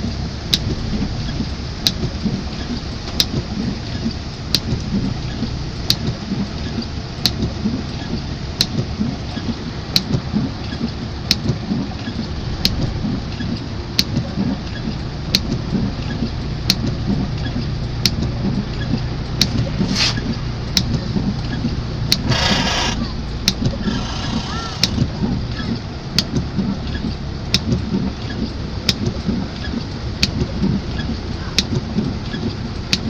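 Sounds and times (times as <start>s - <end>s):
heavy rain: 0.0s - 33.0s
sharp clicking: 22.1s - 25.1s.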